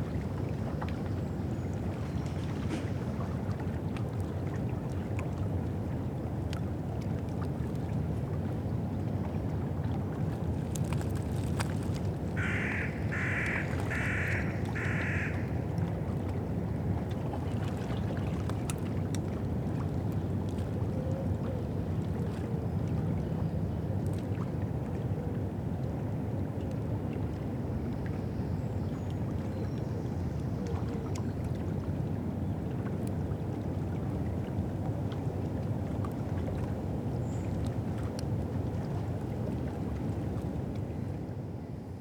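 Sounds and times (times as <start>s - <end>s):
wind: 0.0s - 42.0s
river water washing: 10.5s - 16.2s
crow cawing: 12.4s - 15.5s.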